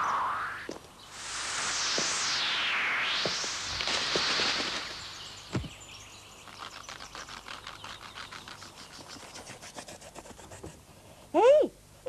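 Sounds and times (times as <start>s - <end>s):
gusting wind: 0.0s - 6.5s
birds chirping: 4.0s - 9.4s.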